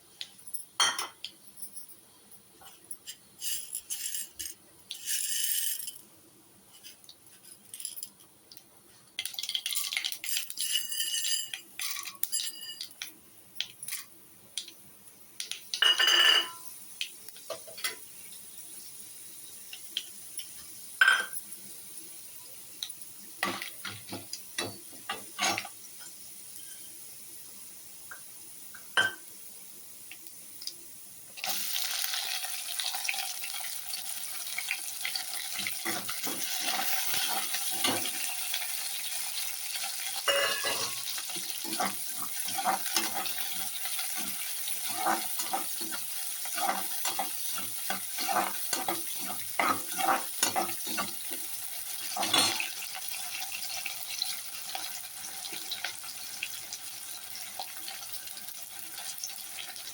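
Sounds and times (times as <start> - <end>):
food sizzling in a pan: 0.0 - 59.9
spoon scraping and knocking pan: 15.8 - 16.7, 35.5 - 38.3, 40.2 - 52.8.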